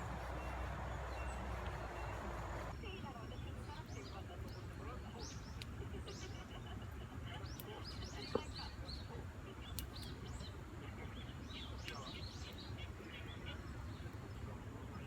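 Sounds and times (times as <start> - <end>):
low background rumble: 0.0 - 3.4
small birds chirping: 0.0 - 15.0.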